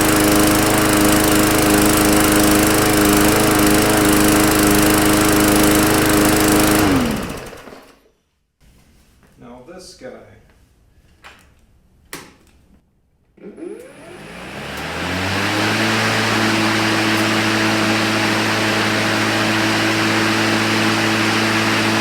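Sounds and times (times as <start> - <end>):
electric mower motor whine: 0.0 - 8.0, 13.4 - 22.0.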